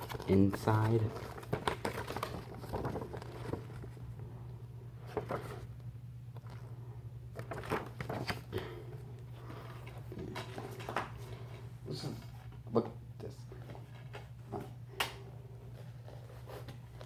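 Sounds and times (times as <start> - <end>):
plastic case and paper handled: 0.0 - 4.0
steady low hum: 0.0 - 17.0.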